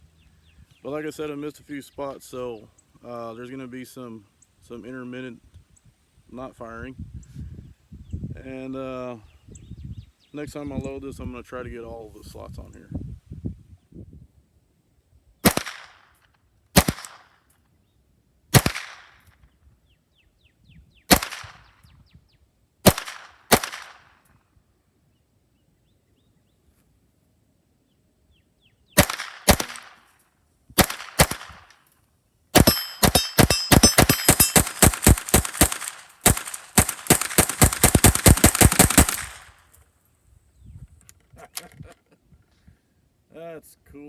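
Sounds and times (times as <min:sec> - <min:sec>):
pistol firing shots: 0:15.4 - 0:16.0, 0:16.8 - 0:17.3, 0:18.5 - 0:19.2, 0:21.1 - 0:21.7, 0:22.8 - 0:24.1, 0:29.0 - 0:30.0, 0:30.8 - 0:31.8, 0:32.6 - 0:39.5
metallic ringing: 0:32.6 - 0:35.2.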